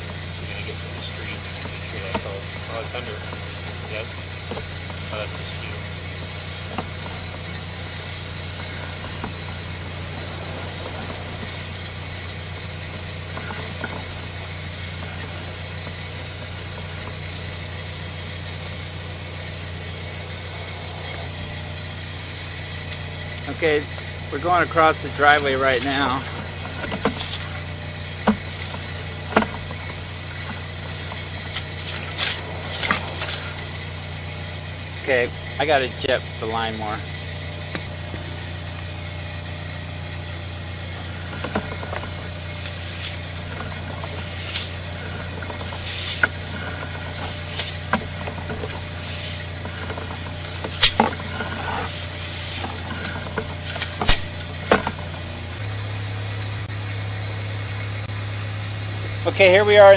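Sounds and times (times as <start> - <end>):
engine idling: 0.0 - 59.9
sharp clicks and knocks: 1.0 - 17.6, 25.3 - 33.9, 41.0 - 55.3.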